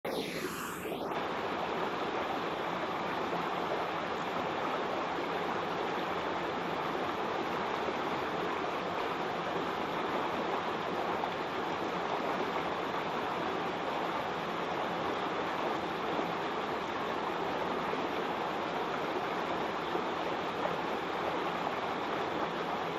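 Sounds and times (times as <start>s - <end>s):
sweeping tone: 0.0s - 1.2s.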